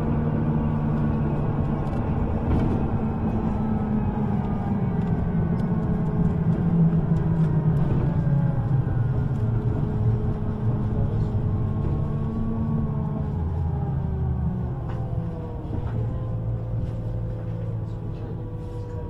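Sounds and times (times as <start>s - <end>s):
wheel and track rumble: 0.0s - 19.0s.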